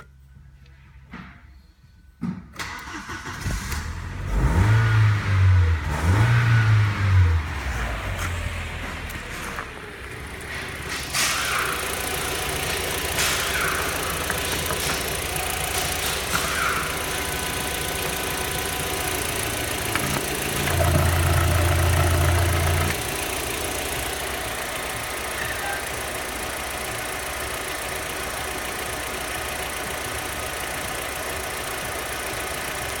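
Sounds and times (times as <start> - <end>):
car engine idling: 5.2 - 33.0
loud low hum: 5.5 - 25.9.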